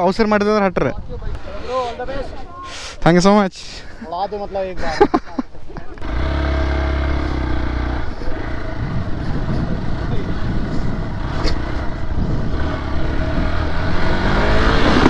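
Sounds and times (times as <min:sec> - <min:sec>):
dirt bike engine running: 0:05.8 - 0:15.0.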